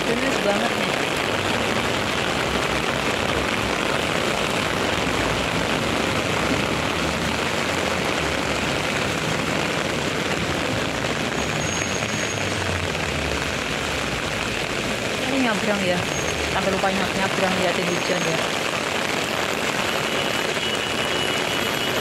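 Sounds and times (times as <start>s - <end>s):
heavy rain on street: 0.0s - 22.0s
traffic on wet road: 0.0s - 22.0s.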